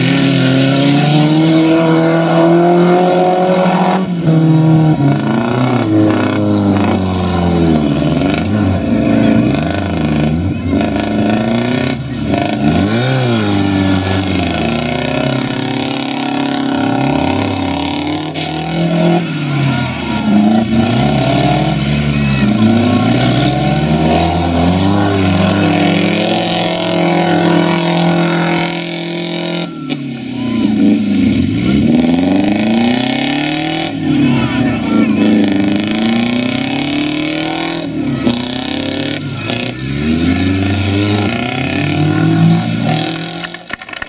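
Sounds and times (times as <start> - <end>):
car engines revving: 0.0 - 44.0.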